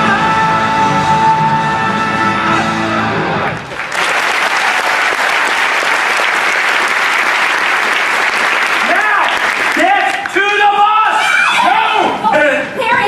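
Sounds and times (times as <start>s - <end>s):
rock song with electric guitar: 0.0s - 3.6s
crowd clapping and cheering: 2.3s - 11.0s.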